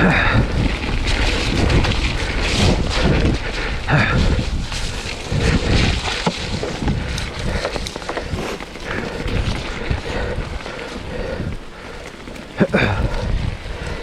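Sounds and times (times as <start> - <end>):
wind buffeting microphone: 0.0 - 14.0
bike tyres rolling: 0.5 - 14.0
bike clattering over bumps: 4.0 - 10.4, 11.1 - 13.4.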